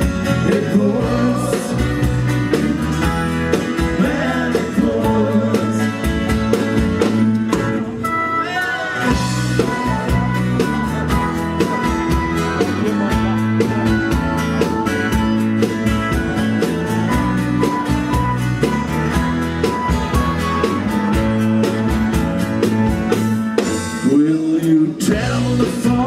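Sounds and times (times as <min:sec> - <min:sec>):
bass: 0:00.0 - 0:26.0
guitar: 0:00.0 - 0:26.0
person singing: 0:00.3 - 0:02.3, 0:03.8 - 0:06.2, 0:08.2 - 0:10.4, 0:24.0 - 0:26.0.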